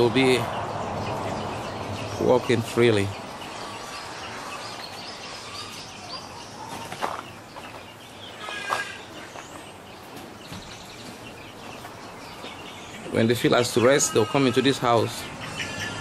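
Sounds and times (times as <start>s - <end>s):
chickens clucking: 0.0s - 16.0s
chicken loud call: 13.7s - 16.0s.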